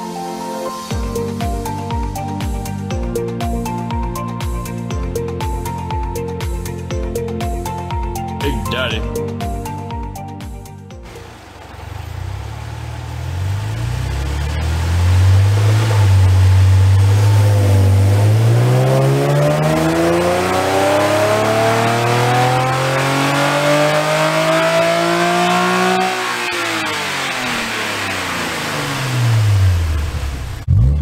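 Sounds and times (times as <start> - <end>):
car engine revving: 11.0 - 31.0.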